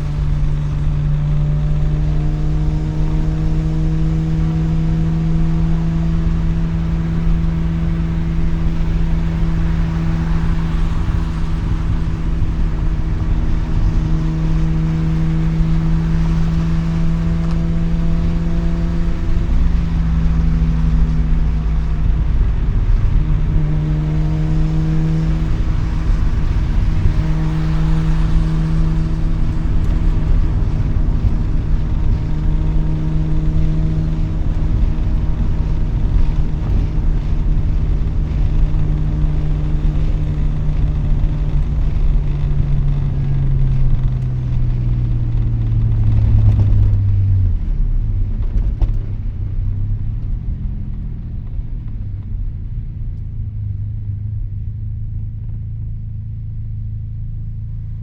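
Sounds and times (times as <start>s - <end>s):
road noise: 0.0s - 58.0s
rotary engine exhaust drone: 0.0s - 58.0s.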